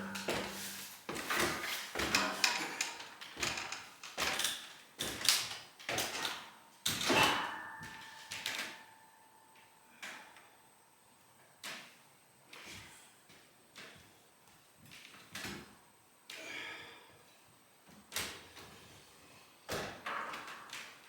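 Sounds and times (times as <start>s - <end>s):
steady ringing tone: 0.0s - 0.8s.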